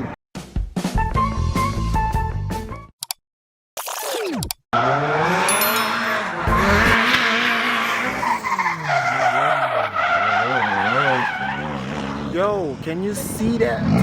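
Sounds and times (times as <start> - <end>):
car engine revving: 4.8 - 14.0
tyres squealing: 5.2 - 12.3.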